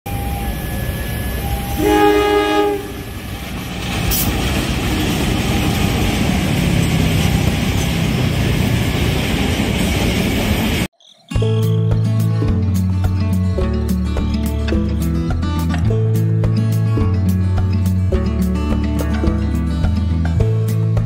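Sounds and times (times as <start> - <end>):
train wheels rumbling on rails: 0.1 - 10.9
locomotive horn: 1.6 - 3.4.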